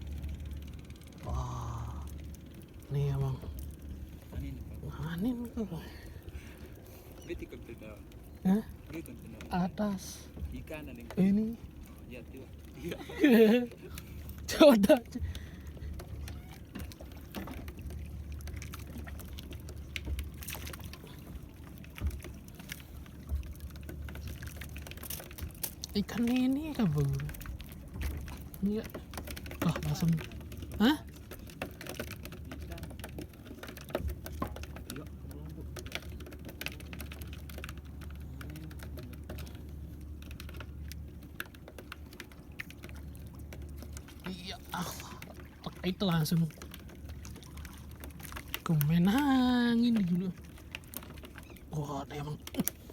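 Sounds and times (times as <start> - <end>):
steady low rumble: 0.0 - 11.9
steady low hum: 0.0 - 52.9
water sloshing against boat: 0.0 - 52.9
small knocks and clicks: 15.2 - 49.3.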